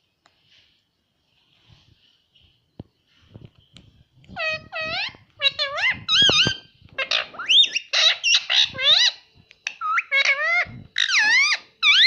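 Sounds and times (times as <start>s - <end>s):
parrot squawking: 4.4s - 12.0s
parrot whistly calls: 4.4s - 12.0s.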